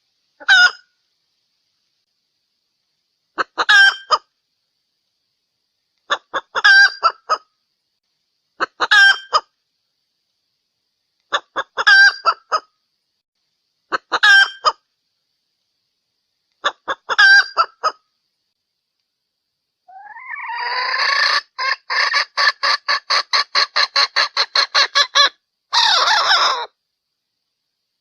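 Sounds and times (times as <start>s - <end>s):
junglefowl hen calling: 0.4s - 1.0s, 3.4s - 4.3s, 6.0s - 7.5s, 8.6s - 9.6s, 11.3s - 12.8s, 13.9s - 14.9s, 16.6s - 18.1s, 19.9s - 26.8s.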